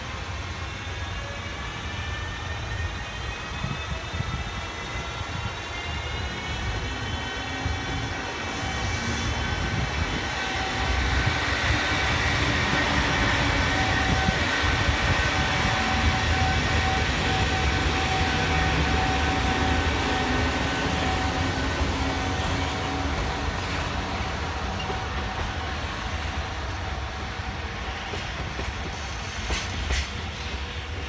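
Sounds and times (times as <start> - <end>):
freight train rumbling past: 0.0 - 31.0.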